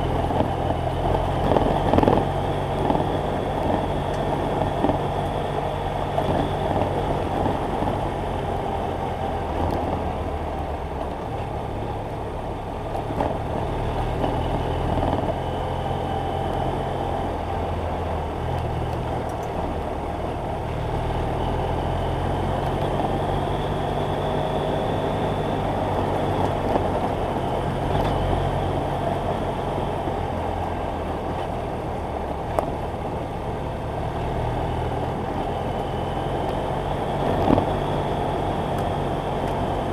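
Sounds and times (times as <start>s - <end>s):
motorcycle engine revving: 0.0s - 10.3s
wind noise: 0.0s - 10.4s, 21.7s - 32.8s, 34.0s - 39.9s.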